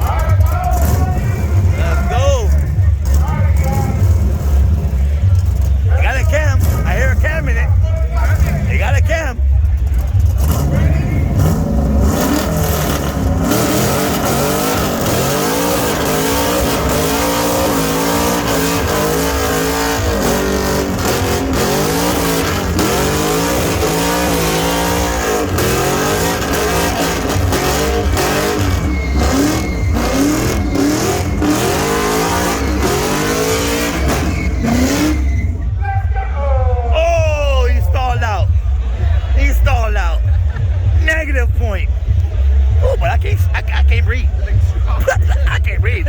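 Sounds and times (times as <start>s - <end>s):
car engine revving hard: 0.2s - 35.8s.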